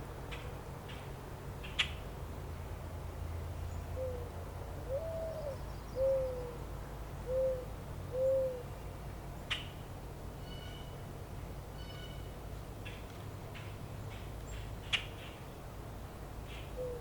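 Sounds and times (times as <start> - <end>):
bird hooting: 4.9 - 6.6, 7.3 - 8.7, 16.8 - 17.0.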